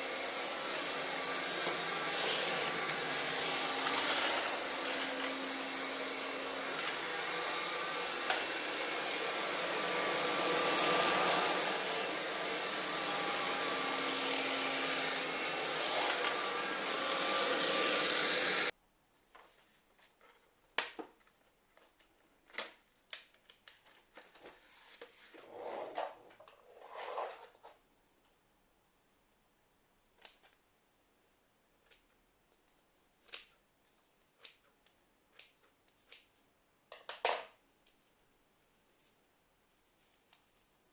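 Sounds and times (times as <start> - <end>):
cordless vacuum cleaner running: 0.0 - 18.7.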